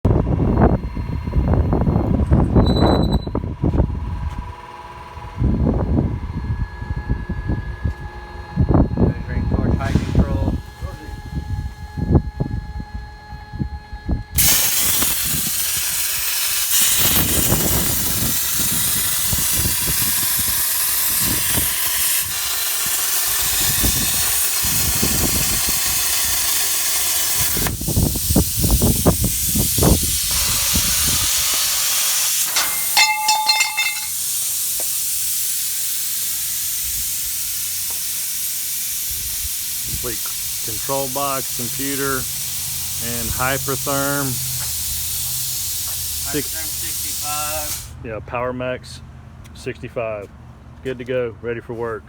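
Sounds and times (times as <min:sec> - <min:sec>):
plasma cutter hissing: 0:14.4 - 0:48.0.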